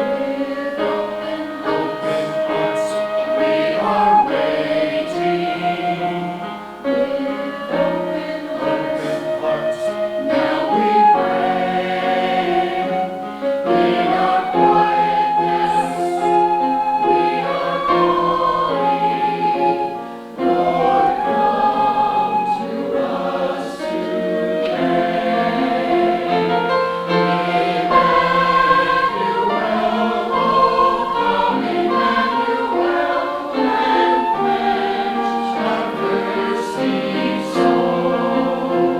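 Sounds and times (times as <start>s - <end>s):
choir singing sustained notes: 0.0s - 38.9s.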